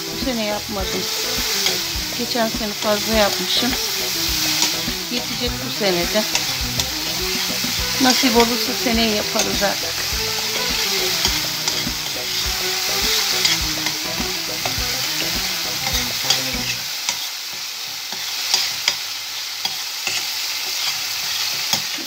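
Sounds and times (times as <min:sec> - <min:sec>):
food sizzling in oil: 0:00.0 - 0:22.0
metal spoon scraping a pot: 0:11.0 - 0:12.4.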